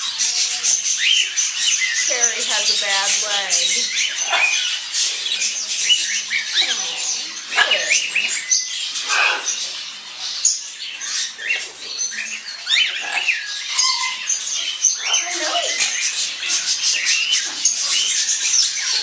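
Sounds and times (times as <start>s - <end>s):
caged birds chirping and squawking: 0.0s - 19.0s.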